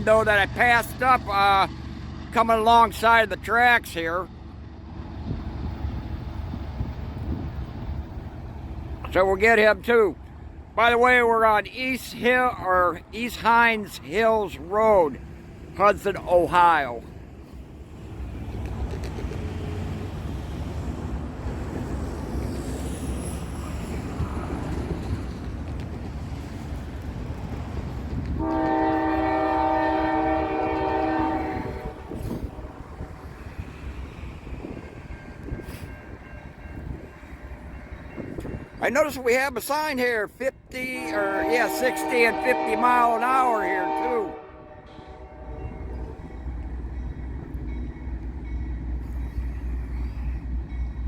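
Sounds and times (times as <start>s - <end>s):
train and road rumble: 0.0s - 51.0s
locomotive air horn blast: 28.4s - 32.8s, 40.9s - 46.0s.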